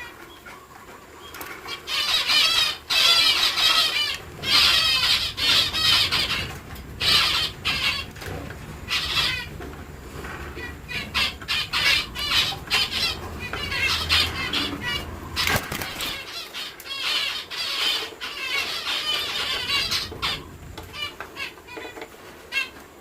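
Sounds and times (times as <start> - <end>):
dove chicks squeaking: 0.0 - 23.0
low rumble: 4.2 - 16.2
fluttering wings: 12.0 - 16.4.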